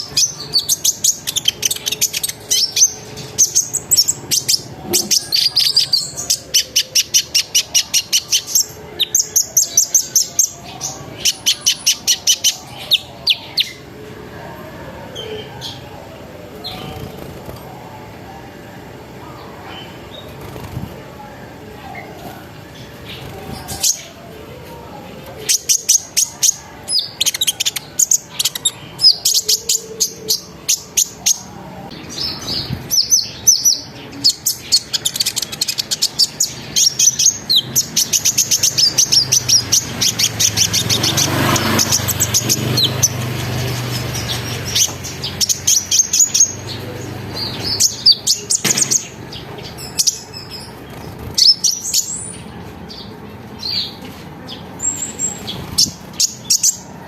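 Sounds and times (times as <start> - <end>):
sunbird singing: 0.0 - 17.2, 25.2 - 57.0.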